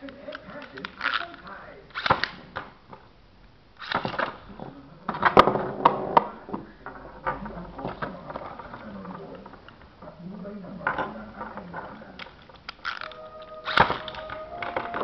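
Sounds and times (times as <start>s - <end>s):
spinning tops clashing: 12.8s - 15.0s.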